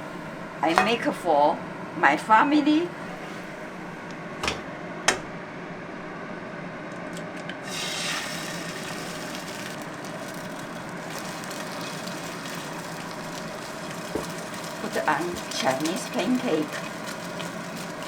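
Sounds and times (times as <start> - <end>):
pancake sizzling in hot oil: 7.6 - 18.0.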